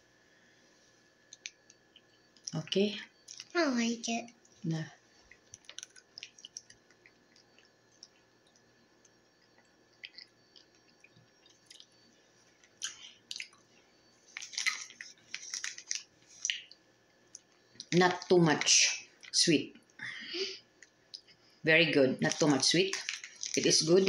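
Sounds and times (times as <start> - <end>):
person chewing granola bar: 5.2 - 13.7, 14.3 - 17.9, 22.3 - 24.0.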